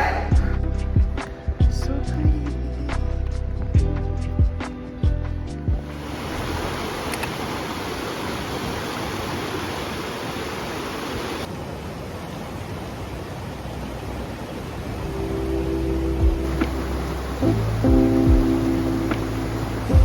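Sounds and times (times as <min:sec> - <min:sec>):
waterfall rushing: 0:05.8 - 0:20.0.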